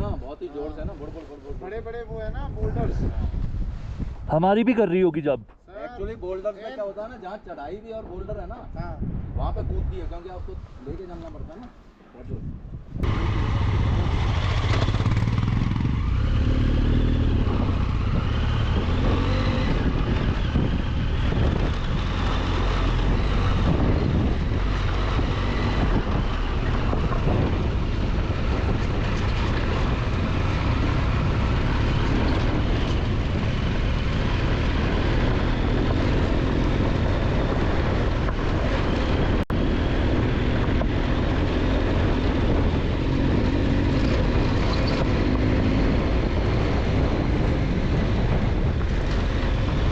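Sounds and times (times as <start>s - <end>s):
road noise: 0.0s - 49.9s
wind: 0.0s - 49.9s
motorcycle engine running: 13.0s - 46.1s.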